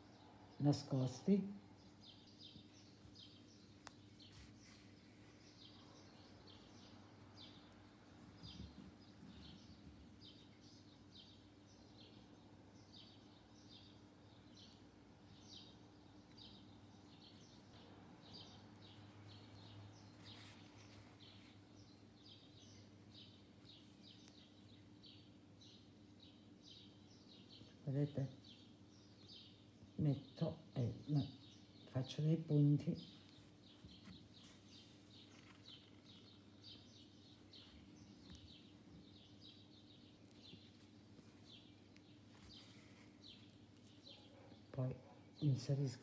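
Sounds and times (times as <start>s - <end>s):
bird chirping faintly: 0.0s - 46.0s.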